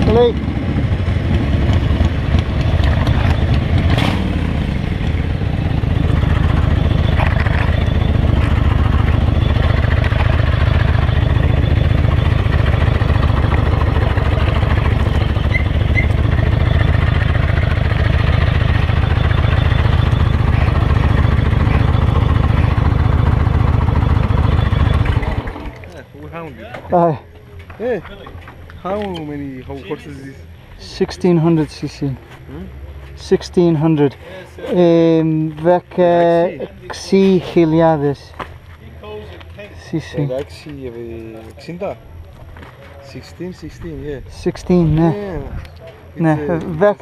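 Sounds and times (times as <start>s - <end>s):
motorcycle engine idling: 0.0s - 26.3s.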